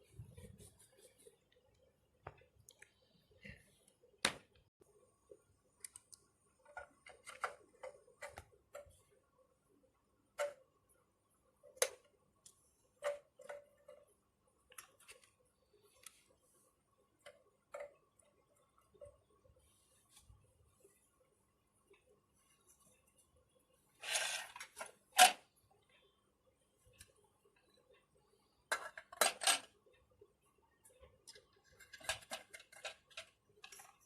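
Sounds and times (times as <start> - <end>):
small parts clicking and tapping: 5.3 - 9.4, 11.6 - 16.3, 26.9 - 34.0.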